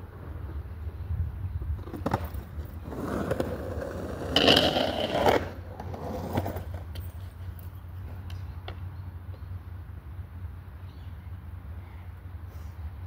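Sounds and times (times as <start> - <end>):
skateboard wheels rolling: 0.0 - 8.9
skateboard scraping with squeal: 1.8 - 7.5.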